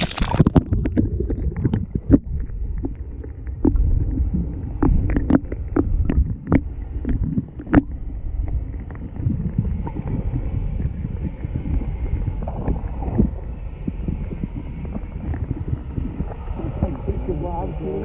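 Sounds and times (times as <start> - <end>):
low rumble: 0.0 - 18.0
water around boat: 0.0 - 18.0
wind buffeting microphone: 3.6 - 18.0.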